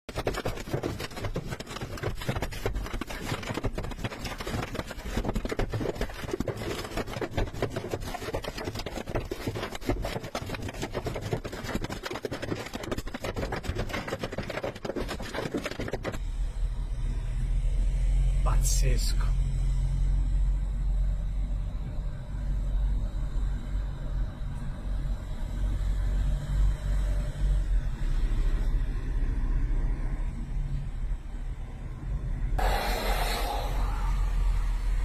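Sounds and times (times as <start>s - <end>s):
hailstones drumming on a car: 0.1s - 16.2s
low steady rumble: 16.2s - 35.0s.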